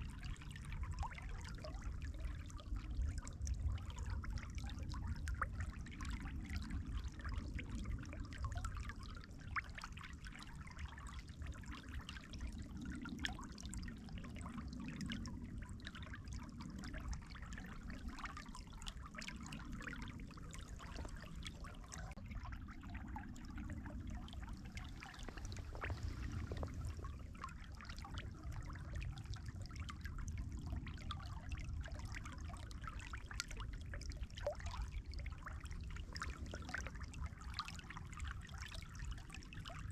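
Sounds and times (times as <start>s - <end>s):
water trickling and babbling: 0.0s - 39.9s
low rumble: 19.0s - 31.0s.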